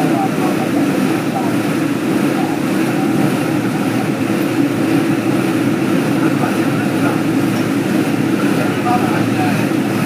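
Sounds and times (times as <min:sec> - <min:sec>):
passenger train rumbling: 0:00.0 - 0:10.0.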